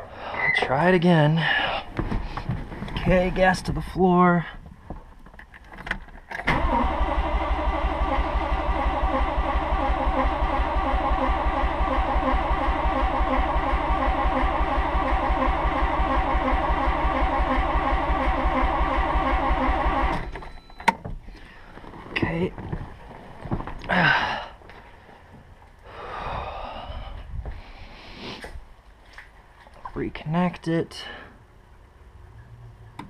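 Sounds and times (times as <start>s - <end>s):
engine cranking by starter: 6.4s - 20.9s.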